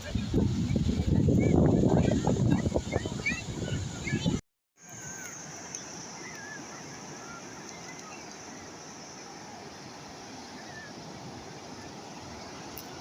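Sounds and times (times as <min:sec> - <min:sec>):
sea waves washing: 0:04.8 - 0:13.0.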